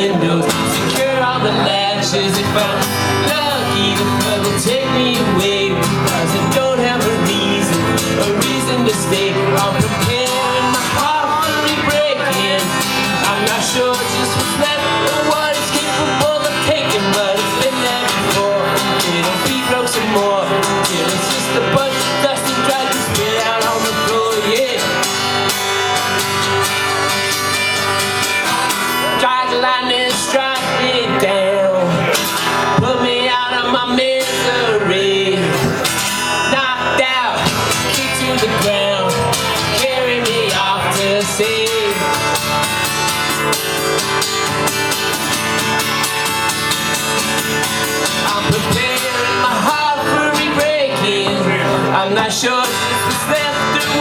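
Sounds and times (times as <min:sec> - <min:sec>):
acoustic guitar strumming: 0:00.0 - 0:54.0
man singing: 0:00.0 - 0:54.0.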